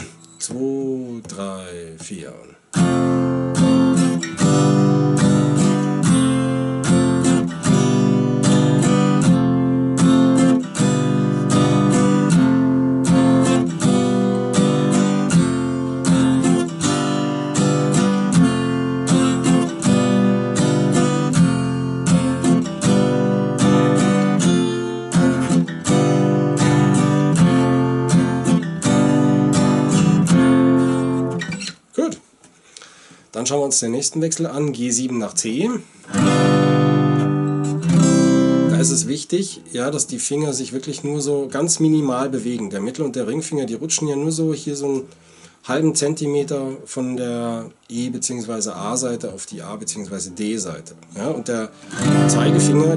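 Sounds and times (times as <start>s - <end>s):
acoustic guitar strumming: 2.0s - 31.9s, 36.0s - 39.2s, 50.8s - 52.9s.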